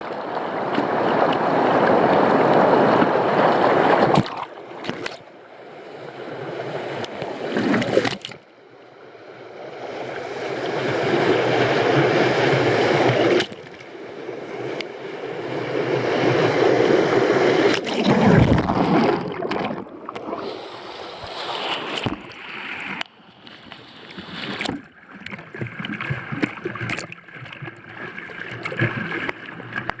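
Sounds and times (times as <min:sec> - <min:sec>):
whitewater rushing: 0:10.2 - 0:23.0.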